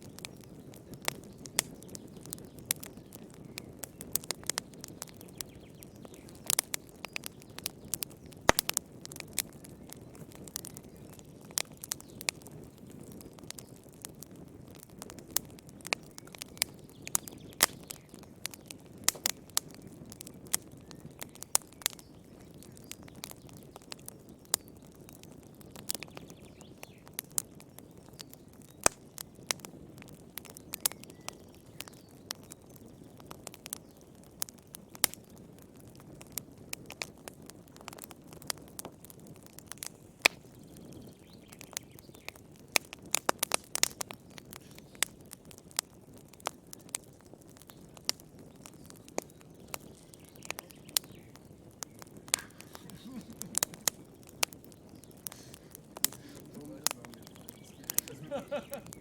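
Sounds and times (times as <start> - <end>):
wood fire crackling and popping: 0.0 - 59.0
low rush of flame: 33.2 - 59.0.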